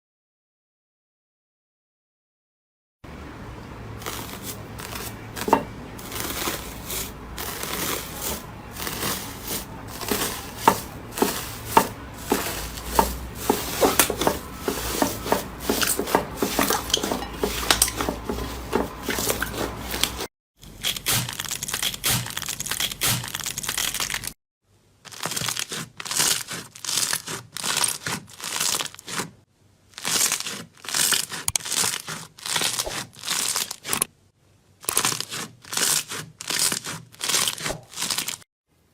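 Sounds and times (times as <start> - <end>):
slime crackling and popping: 25.1 - 29.2, 30.0 - 34.0, 34.8 - 38.4.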